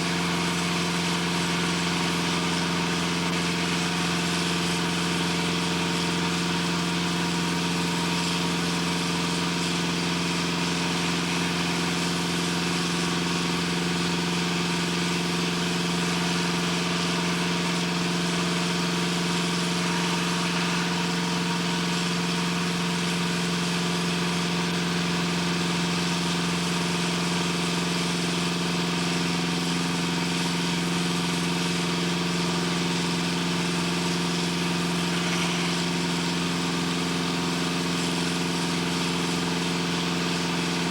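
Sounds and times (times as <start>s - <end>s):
heavy machinery drone: 14.5s - 23.7s.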